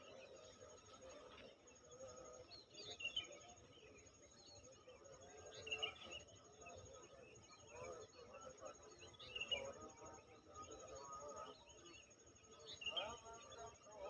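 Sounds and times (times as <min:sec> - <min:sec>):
small birds chirping: 0:00.0 - 0:10.0
countryside ambience: 0:00.0 - 0:14.0.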